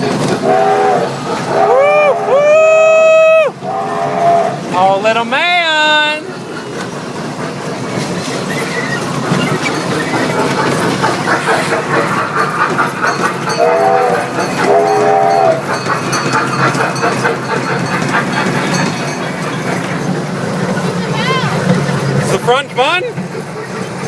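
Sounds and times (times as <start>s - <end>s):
ride train rattling: 0.0s - 24.0s
train whistle toots: 0.3s - 4.6s, 13.5s - 15.7s.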